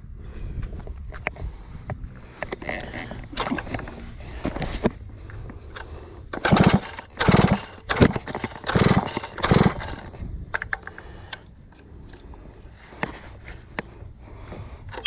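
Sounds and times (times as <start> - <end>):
chainsaw recoil starter pulls: 2.4 - 4.9, 5.7 - 11.5.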